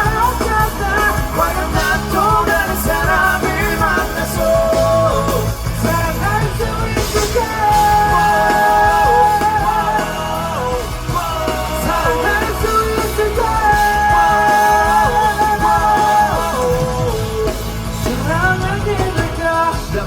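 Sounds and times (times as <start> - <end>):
bending melody line: 0.0 - 20.0
live rock band playing: 0.0 - 20.0.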